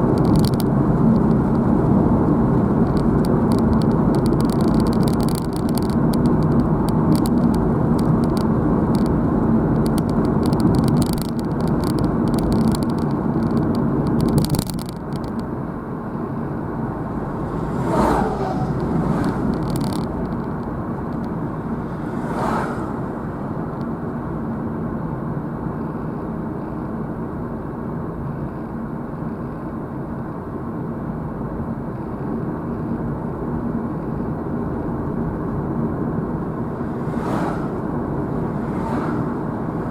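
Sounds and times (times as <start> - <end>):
hum with rapid crackling clicks: 0.0 - 24.3
car road and engine noise: 0.0 - 39.9
short swishes falling in pitch: 17.2 - 19.6.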